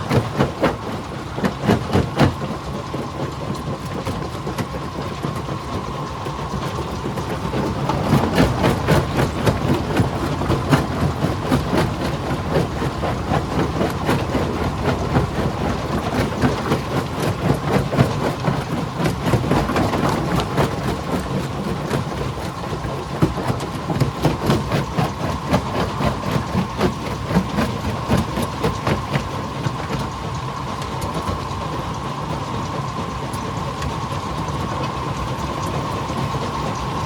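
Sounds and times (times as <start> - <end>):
rocks knocking and rattling: 0.0 - 30.2
stone crusher machine drone: 6.0 - 22.2.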